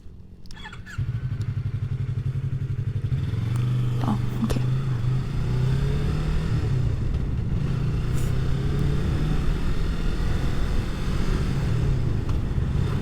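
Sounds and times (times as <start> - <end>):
motorcycle engine idling: 0.1 - 9.0.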